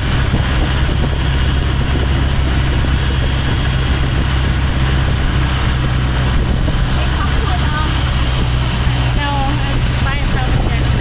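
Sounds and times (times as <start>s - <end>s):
motorboat engine droning: 0.0s - 11.0s.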